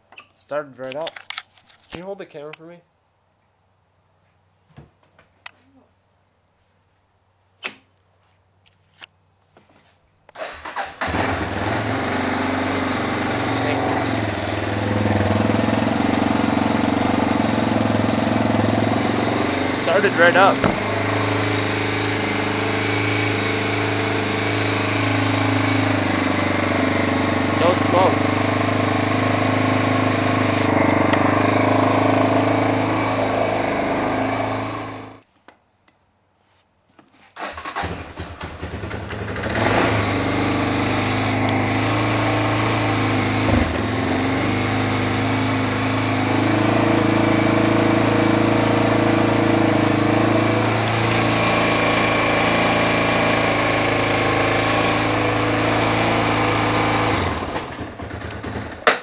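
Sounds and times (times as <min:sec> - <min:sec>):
engine starting: 0:10.4 - 0:11.8, 0:37.4 - 0:40.1
motorcycle engine idling: 0:11.0 - 0:35.2, 0:37.8 - 0:51.2, 0:57.6 - 0:58.8.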